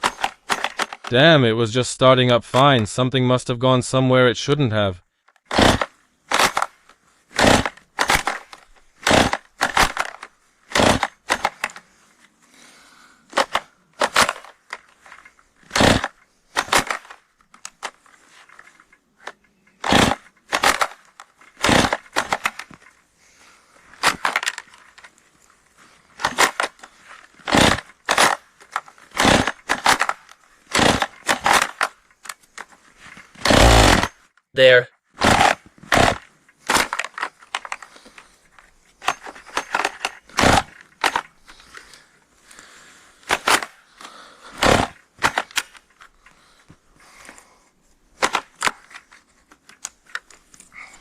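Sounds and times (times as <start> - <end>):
chainsaw starter cord rasping: 0.0 - 1.2, 5.3 - 11.9, 13.3 - 23.0, 23.9 - 25.2, 26.0 - 34.3, 35.2 - 38.4, 39.0 - 46.6.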